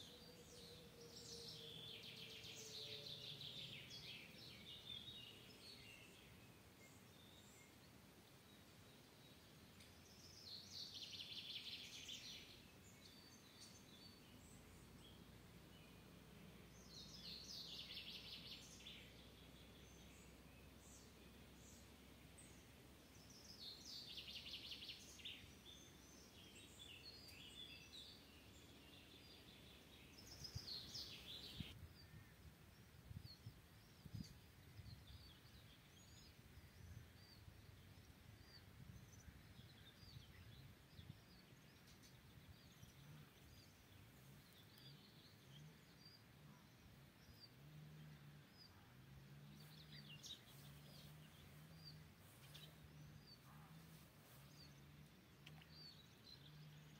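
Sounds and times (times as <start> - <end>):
faint low hum: 11.8 - 56.9
bird chirps: 38.4 - 56.9.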